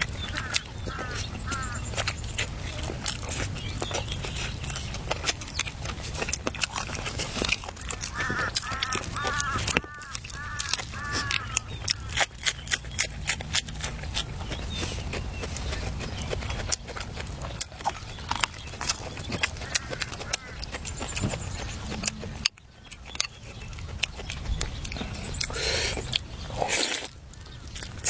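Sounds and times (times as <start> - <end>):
bird calling: 0.0 - 5.7, 7.8 - 13.1, 17.9 - 26.6.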